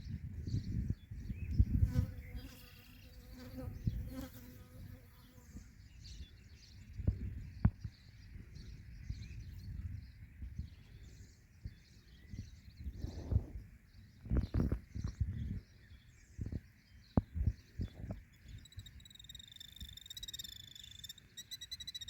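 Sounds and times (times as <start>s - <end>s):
flying insect buzzing: 1.8s - 5.5s
faint high chirps: 18.3s - 22.0s.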